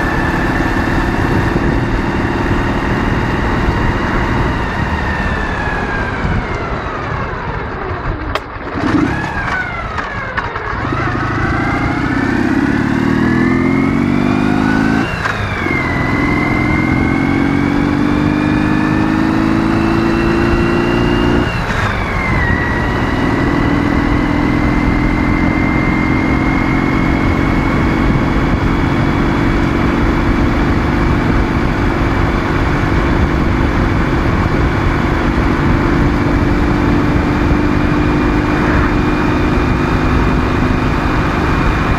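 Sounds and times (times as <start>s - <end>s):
gear changes: 0.0s - 41.9s
motorcycle engine: 0.0s - 41.9s.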